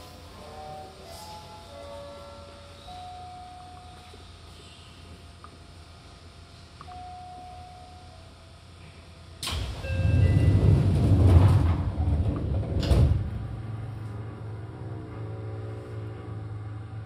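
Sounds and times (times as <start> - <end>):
train running: 0.0 - 8.6, 9.3 - 17.0
rushing rumble: 9.7 - 17.0.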